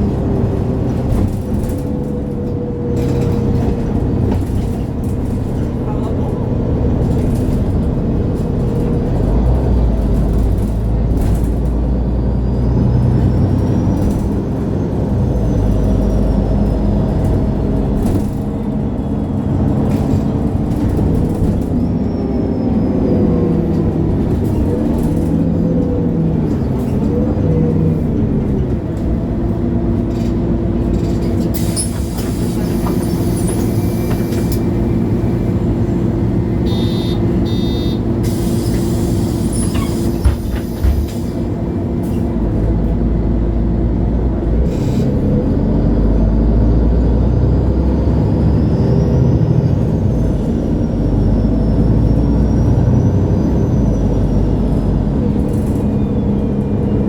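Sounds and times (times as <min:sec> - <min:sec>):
bus engine accelerating: 0:00.0 - 0:57.0.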